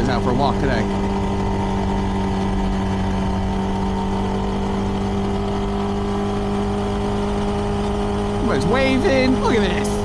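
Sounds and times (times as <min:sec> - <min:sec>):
motorcycle engine running steadily: 0:00.0 - 0:10.0.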